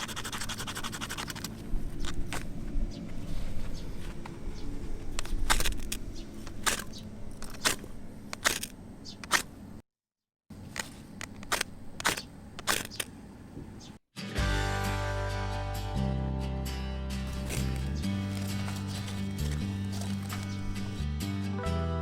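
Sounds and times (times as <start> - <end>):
music: 14.2 - 22.0.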